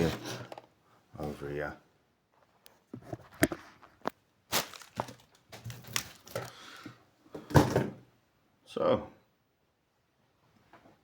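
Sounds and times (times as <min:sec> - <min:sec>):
packaging rustling: 0:03.4 - 0:06.8.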